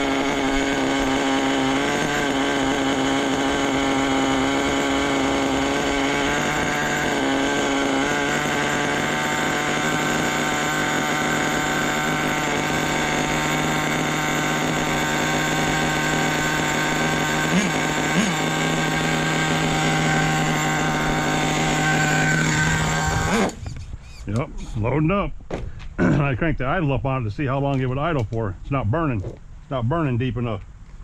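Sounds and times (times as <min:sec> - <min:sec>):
small engine idling: 0:00.0 - 0:23.9.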